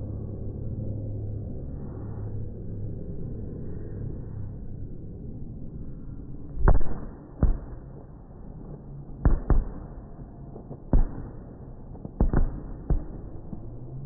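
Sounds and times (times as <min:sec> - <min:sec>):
low rumble: 0:00.0 - 0:14.0
fireworks bangs: 0:09.3 - 0:13.8.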